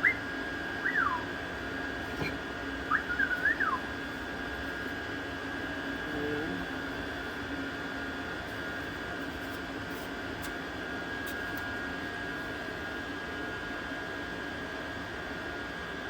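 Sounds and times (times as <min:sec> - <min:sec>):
fan motor whirring: 0:00.0 - 0:16.0
high whine: 0:02.1 - 0:04.8.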